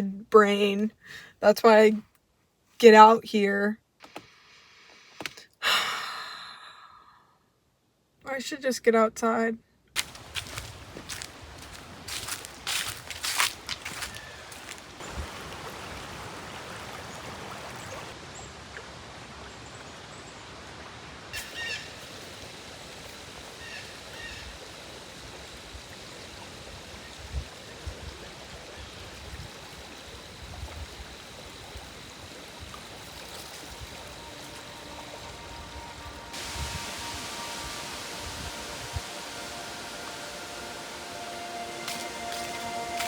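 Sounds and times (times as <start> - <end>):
river water flowing: 10.0 - 23.8, 29.5 - 43.0.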